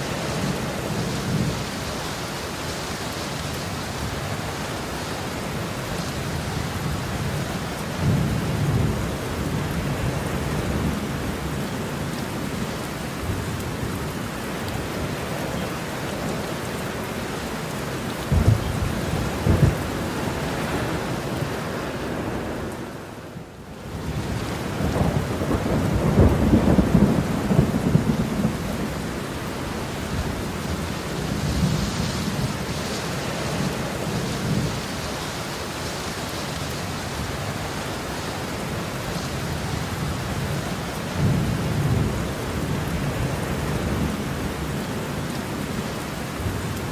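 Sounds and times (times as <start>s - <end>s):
heavy rain: 0.0s - 46.9s
thunder claps: 18.3s - 20.8s
rolling thunder rumble: 18.3s - 21.5s, 24.0s - 32.8s.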